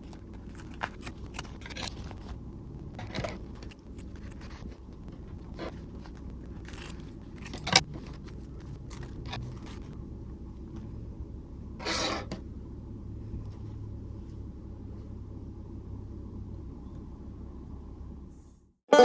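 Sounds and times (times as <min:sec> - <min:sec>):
mask rustling and scraping: 0:00.0 - 0:10.0
low steady hum: 0:00.0 - 0:19.0.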